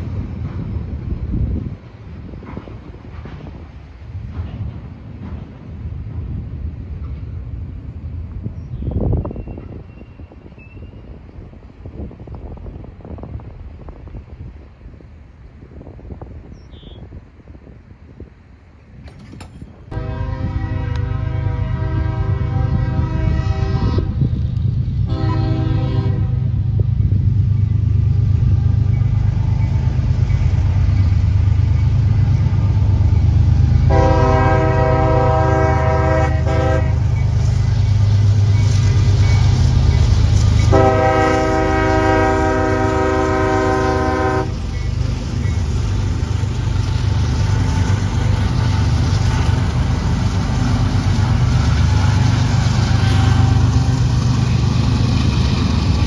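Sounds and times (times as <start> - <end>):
train rumbling: 0.0 - 56.0
train horn blasts: 19.9 - 24.3, 25.0 - 26.6, 33.8 - 37.2, 40.3 - 44.7, 52.8 - 54.1.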